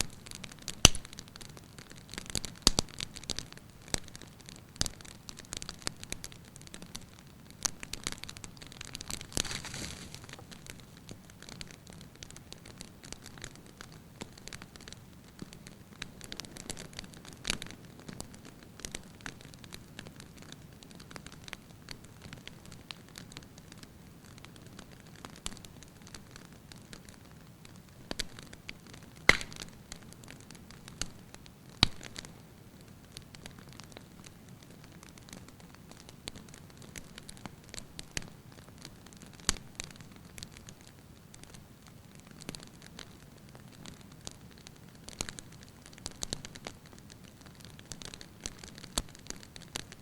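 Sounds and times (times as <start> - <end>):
wood fire crackling: 0.0 - 50.0
logs popping and snapping: 0.4 - 1.2, 7.9 - 11.7, 29.2 - 29.8, 31.8 - 32.3.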